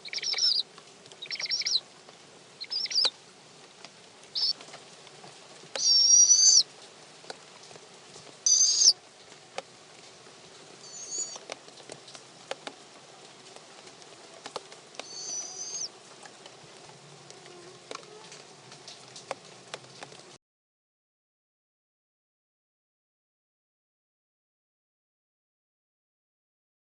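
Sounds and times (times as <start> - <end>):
owl squealing: 0.0 - 0.6, 1.2 - 1.8, 2.6 - 3.1, 4.4 - 4.6, 5.8 - 6.6, 8.5 - 9.0, 10.8 - 11.4, 15.0 - 15.9.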